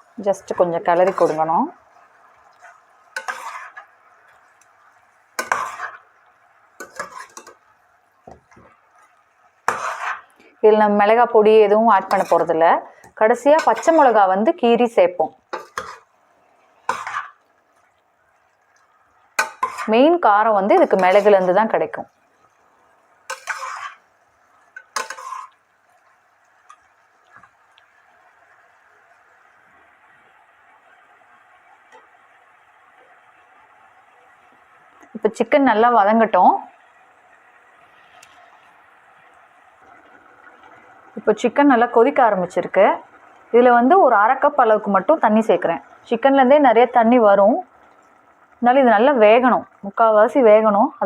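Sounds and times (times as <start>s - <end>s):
faint steady hiss: 0.0s - 51.0s
utensil scraping in a pot: 0.9s - 1.6s, 2.5s - 3.9s, 5.4s - 6.1s, 6.8s - 7.6s, 9.7s - 10.3s, 11.9s - 12.6s, 13.5s - 14.2s, 15.5s - 16.1s, 16.9s - 17.4s, 19.4s - 21.6s, 23.3s - 24.1s, 24.8s - 25.6s.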